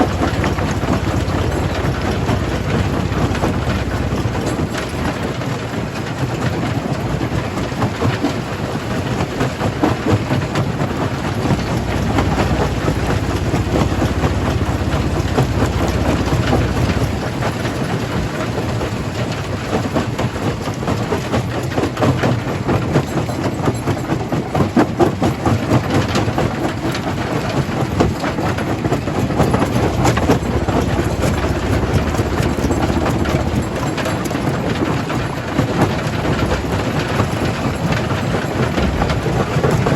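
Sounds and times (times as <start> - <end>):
machine drone: 0.0 - 6.3, 10.0 - 19.8, 28.2 - 39.9
rocks cracking and rattling: 28.5 - 39.9.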